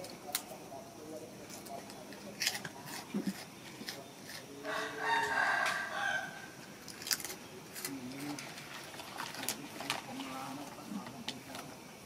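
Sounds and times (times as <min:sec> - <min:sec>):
rooster crowing: 0:04.6 - 0:06.6.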